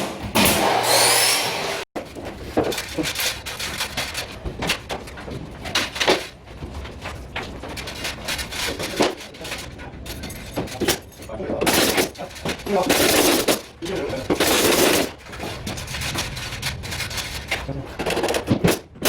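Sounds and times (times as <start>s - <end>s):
loud rasping on wood: 0.4s - 1.9s.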